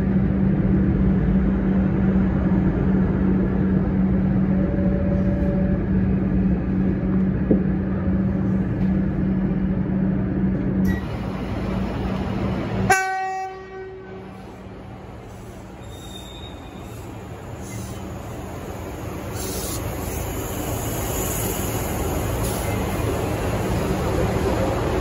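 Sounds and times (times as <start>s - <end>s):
electric train hum and rumble: 0.0s - 25.0s
train horn blast: 12.9s - 14.4s.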